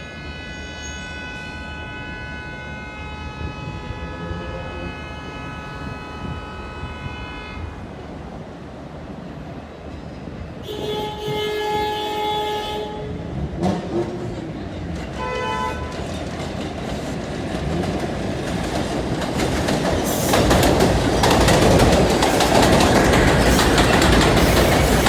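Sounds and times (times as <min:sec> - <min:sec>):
loud steady horn tone: 0:00.0 - 0:07.9, 0:10.6 - 0:13.3, 0:15.2 - 0:16.0
subway train rumbling on rails: 0:00.0 - 0:25.0.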